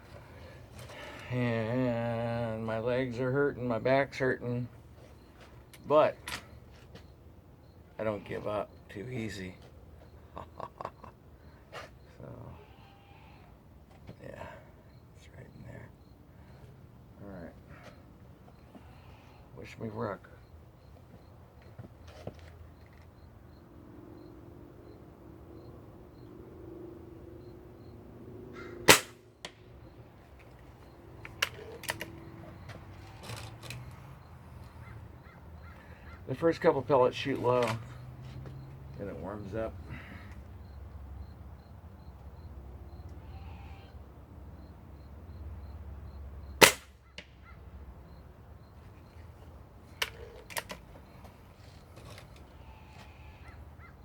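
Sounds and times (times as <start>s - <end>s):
pellet rifle shot: 28.9s - 29.2s, 46.6s - 47.0s.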